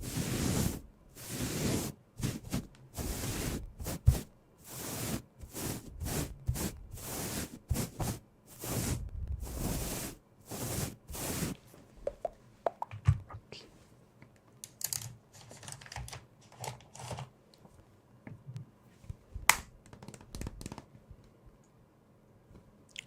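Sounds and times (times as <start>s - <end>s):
brush swishes: 0.0s - 11.7s
small taps and clicks: 19.5s - 21.4s.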